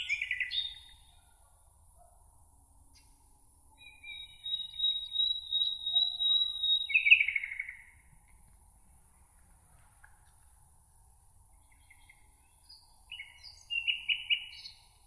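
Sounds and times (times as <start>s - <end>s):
songbird whistling and trilling: 0.0s - 1.1s, 3.8s - 7.9s, 13.1s - 14.8s.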